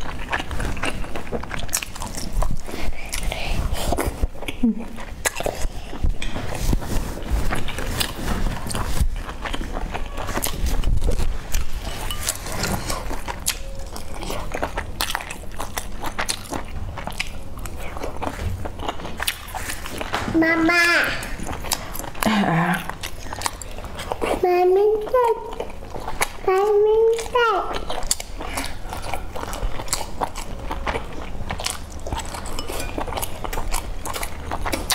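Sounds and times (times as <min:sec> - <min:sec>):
chewing with wet mouth clicks: 0:00.0 - 0:06.5, 0:07.5 - 0:20.2, 0:21.2 - 0:24.4, 0:25.2 - 0:34.9
wet chewing mouth clicks: 0:21.2 - 0:24.4, 0:25.2 - 0:34.9.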